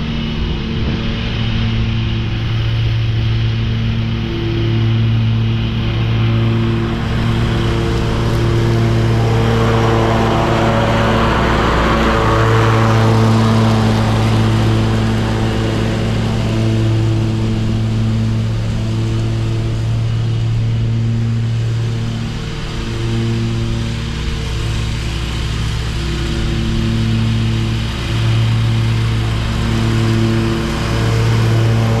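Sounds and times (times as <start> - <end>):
lawn mower engine running: 3.0 - 32.0
blades mulching leaves: 5.7 - 16.0.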